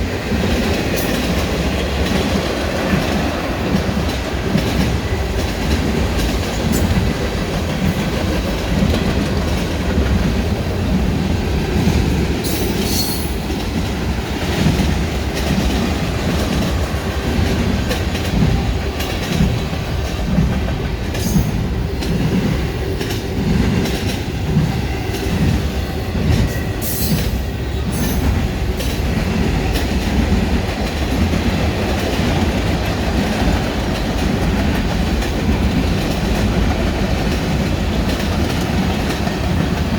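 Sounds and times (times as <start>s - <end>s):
freight train rumbling past: 0.0s - 39.9s
wheels clacking over rail joints: 0.0s - 39.9s.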